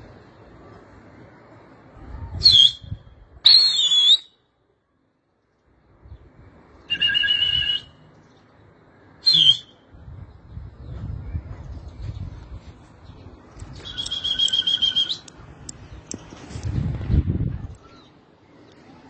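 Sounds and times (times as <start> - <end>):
shrill wavering whistles: 2.4 - 4.4, 6.8 - 8.1, 9.2 - 9.8, 13.8 - 15.3.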